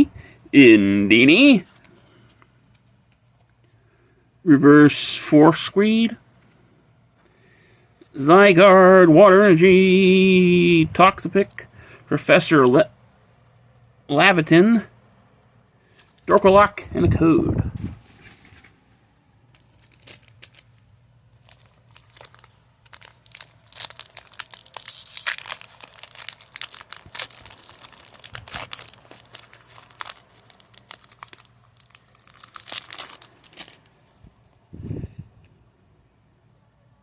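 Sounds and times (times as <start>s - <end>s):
foil wrapper tearing and crinkling: 19.5s - 34.2s.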